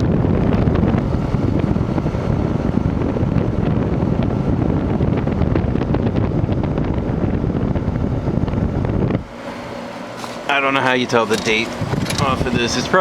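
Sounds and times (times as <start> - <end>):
air conditioner fan hiss: 0.0 - 13.0
air conditioner clicks: 9.1 - 13.0.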